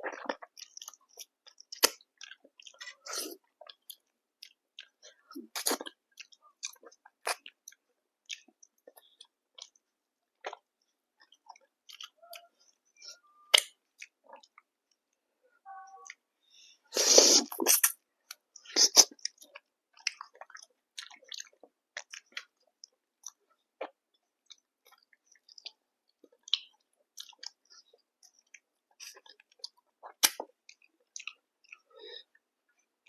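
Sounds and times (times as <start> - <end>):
wet mouth clicks and smacks: 29.6 - 30.5.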